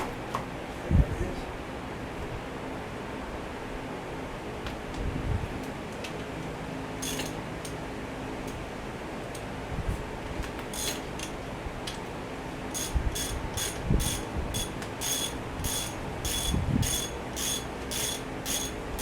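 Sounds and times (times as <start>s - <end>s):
ratchet wrench clicking: 7.0s - 7.4s, 10.7s - 11.3s, 12.8s - 18.8s.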